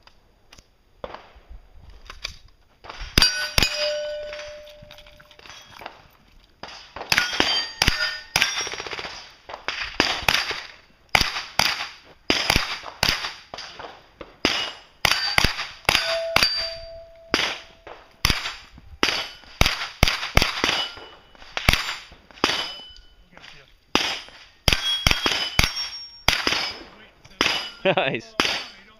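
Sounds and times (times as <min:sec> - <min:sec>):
steel targets ringing clang: 0:03.2 - 0:05.9, 0:07.1 - 0:09.1, 0:14.4 - 0:28.9
rifle shots: 0:06.6 - 0:23.0, 0:23.9 - 0:27.8, 0:28.4 - 0:28.9.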